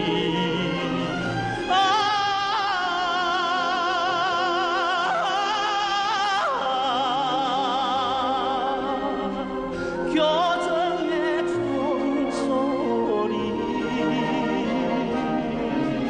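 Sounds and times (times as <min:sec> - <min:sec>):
person singing with wide vibrato: 0:00.0 - 0:16.0.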